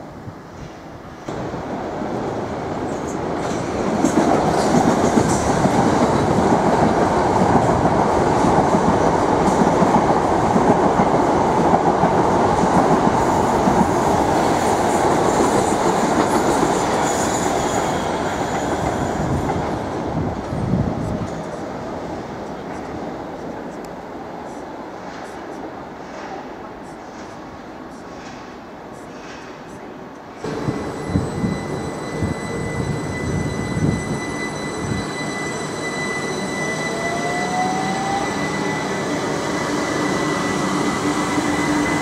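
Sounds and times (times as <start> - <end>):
train wheels clattering on track: 0.6 - 21.6, 25.0 - 35.2.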